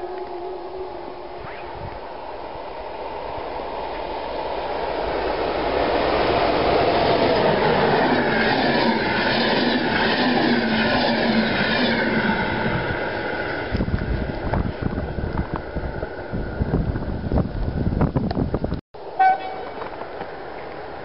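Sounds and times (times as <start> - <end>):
train passing at speed: 0.0 - 21.0.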